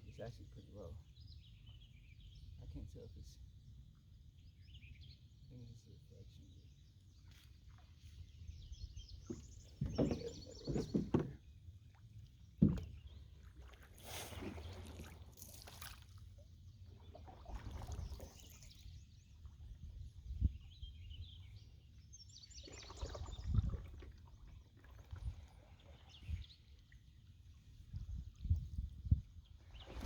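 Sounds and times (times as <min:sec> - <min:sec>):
paddle splashing in water: 0:09.1 - 0:19.6, 0:22.5 - 0:27.2, 0:29.6 - 0:30.0
dull knocks: 0:09.3 - 0:11.4, 0:12.6 - 0:13.0.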